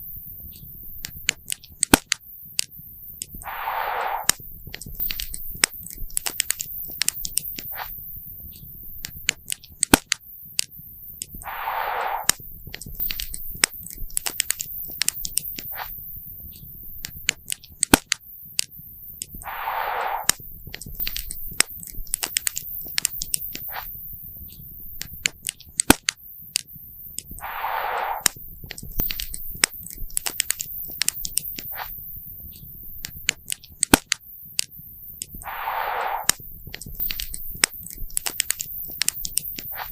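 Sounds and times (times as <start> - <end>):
brief hiss: 3.4 - 4.4, 11.4 - 12.4, 19.4 - 20.4, 27.4 - 28.4, 35.4 - 36.4.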